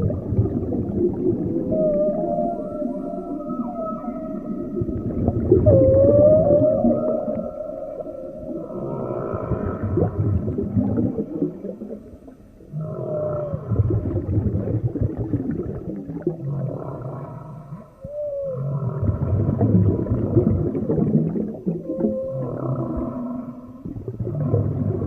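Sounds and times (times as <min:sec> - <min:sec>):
whale moans and groans: 0:00.0 - 0:25.0
whale whoop call: 0:01.4 - 0:10.2, 0:12.8 - 0:14.2, 0:18.0 - 0:19.8, 0:21.7 - 0:23.8.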